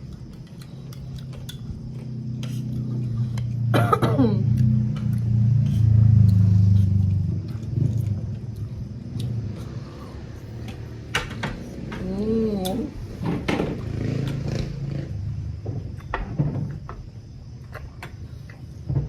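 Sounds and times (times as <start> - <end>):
vehicle engine rumble passing: 2.0 - 16.0.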